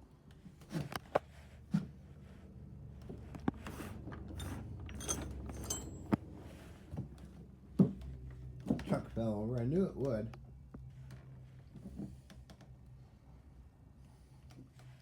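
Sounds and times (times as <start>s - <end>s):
objects knocking and clinking on shelves: 3.5s - 6.3s.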